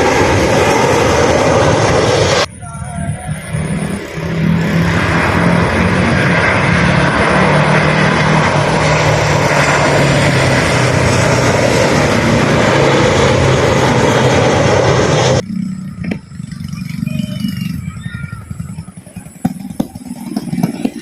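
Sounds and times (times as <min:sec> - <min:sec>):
airliner engine noise: 0:00.0 - 0:21.0.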